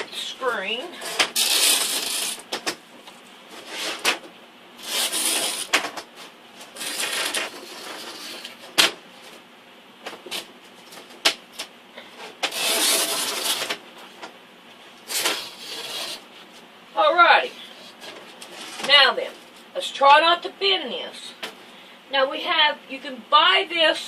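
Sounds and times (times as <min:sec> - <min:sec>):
screen mesh tearing: 0:01.0 - 0:02.5, 0:06.7 - 0:08.8.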